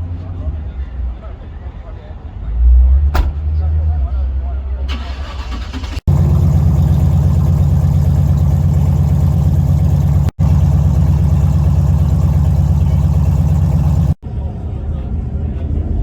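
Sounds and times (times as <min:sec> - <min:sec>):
loud engine idling: 0:05.0 - 0:14.2.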